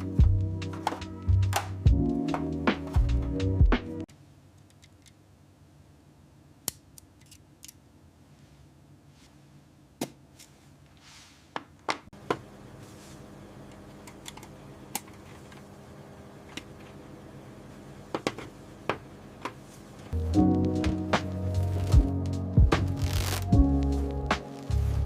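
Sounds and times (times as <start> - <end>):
music: 0.0 - 4.1, 20.2 - 25.0.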